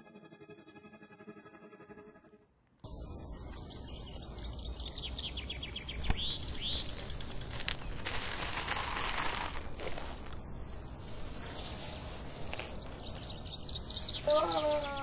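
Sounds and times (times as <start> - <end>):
birds chirping: 2.9 - 8.6, 9.6 - 15.0.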